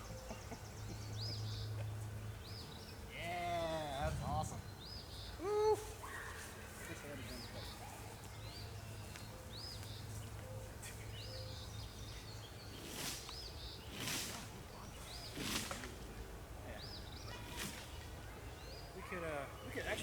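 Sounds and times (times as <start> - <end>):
steady low hum: 3.8 - 5.6
bird chirping: 3.8 - 20.0
rustling: 12.7 - 16.3, 17.2 - 18.2.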